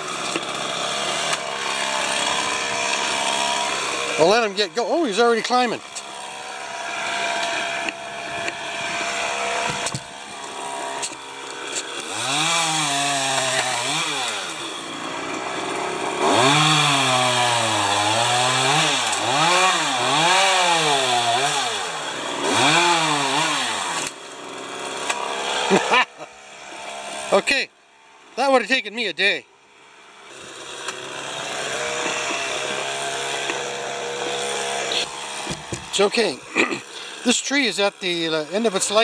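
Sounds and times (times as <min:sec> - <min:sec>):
chainsaw revving: 0:00.0 - 0:28.6, 0:29.8 - 0:39.0.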